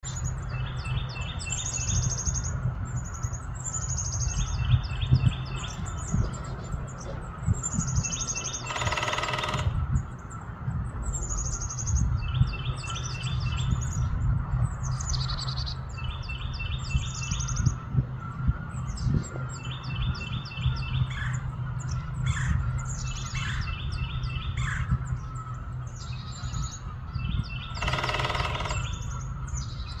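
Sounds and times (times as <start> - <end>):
bird chirping: 0.0 - 30.0
woodpecker drumming on metal gutter: 7.9 - 10.2, 27.6 - 29.9.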